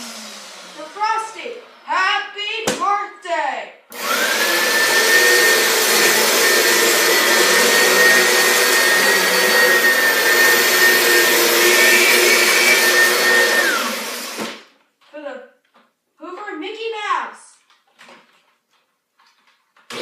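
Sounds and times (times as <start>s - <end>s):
vacuum cleaner running: 0.0s - 1.9s, 3.9s - 14.7s.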